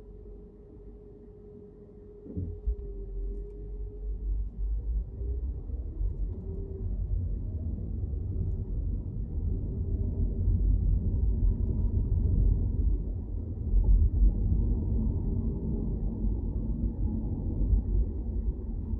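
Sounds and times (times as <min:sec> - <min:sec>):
car engine rumble: 0:00.0 - 0:18.9.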